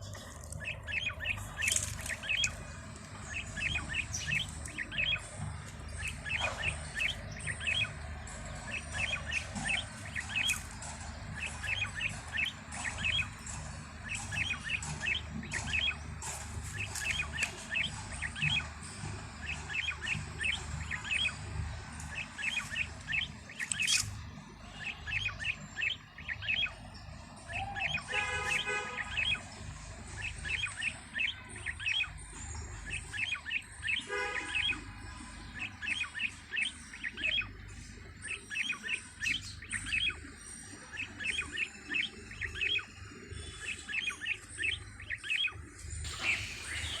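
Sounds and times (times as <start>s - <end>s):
steady low rumble: 0.0s - 27.8s
small birds chirping: 0.0s - 47.0s
harsh buzzy bird call: 46.1s - 47.0s.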